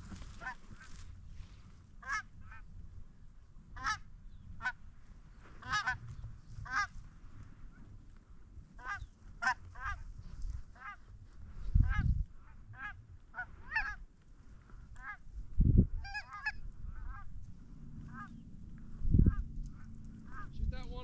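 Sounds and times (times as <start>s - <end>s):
geese honking: 0.0s - 1.1s, 2.0s - 2.6s, 3.8s - 4.8s, 5.6s - 7.0s, 8.8s - 10.1s, 10.7s - 11.2s, 11.8s - 14.1s, 14.8s - 15.3s, 16.0s - 20.7s.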